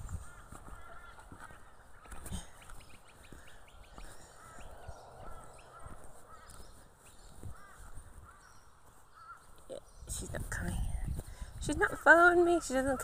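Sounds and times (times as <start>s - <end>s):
birds calling: 0.0s - 13.0s
footsteps on dirt: 0.0s - 13.0s.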